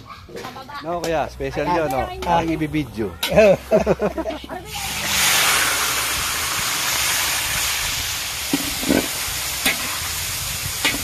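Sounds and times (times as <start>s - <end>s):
food sizzling in hot oil: 4.7s - 11.0s
metal spatula knocking wok: 8.5s - 10.0s, 10.8s - 11.0s.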